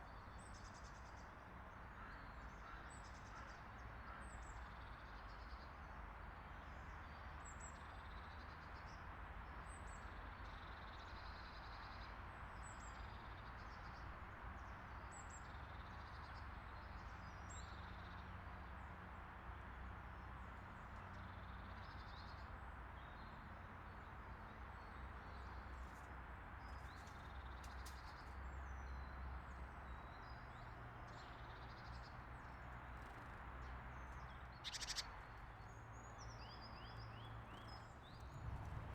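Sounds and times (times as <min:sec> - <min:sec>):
small birds chirping: 0:29.9 - 0:38.9
low rumble: 0:38.1 - 0:38.9.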